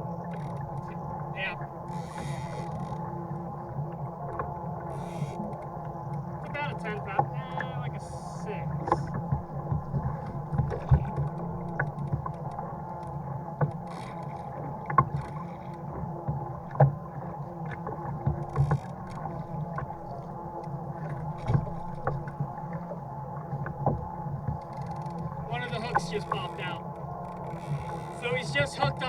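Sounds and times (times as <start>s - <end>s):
steady hum: 6.3s - 9.2s, 28.1s - 29.0s.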